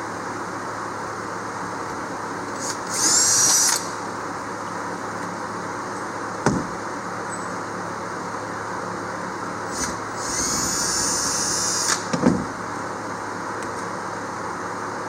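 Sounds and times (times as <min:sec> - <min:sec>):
power drill spinning: 0:02.6 - 0:04.0, 0:09.7 - 0:12.1.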